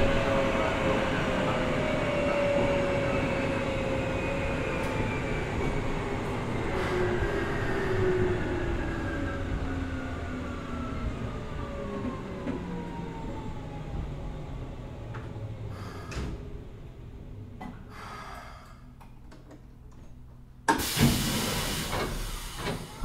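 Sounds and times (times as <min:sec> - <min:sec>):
sliding doors opening with air rush: 0:14.6 - 0:16.8, 0:20.7 - 0:23.0
air brake hissing and clicking: 0:15.8 - 0:16.5, 0:17.6 - 0:19.2, 0:20.7 - 0:23.0.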